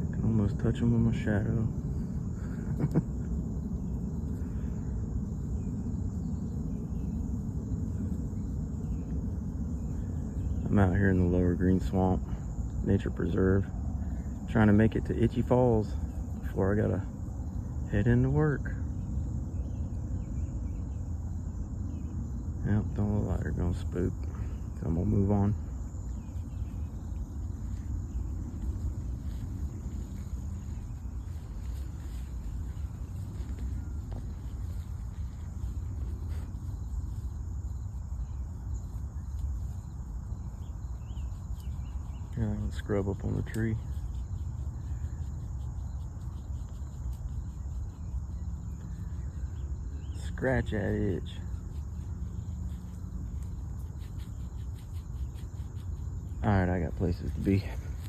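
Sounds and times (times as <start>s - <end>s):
low even rumble: 0.0s - 41.0s
high-pitched insect chorus: 0.0s - 58.0s.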